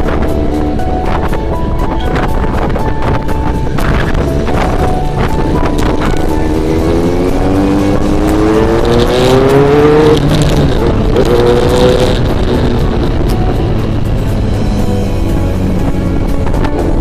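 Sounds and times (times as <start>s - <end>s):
motorcycle engine accelerating: 0.0s - 17.0s
wind noise on microphone: 0.0s - 17.0s.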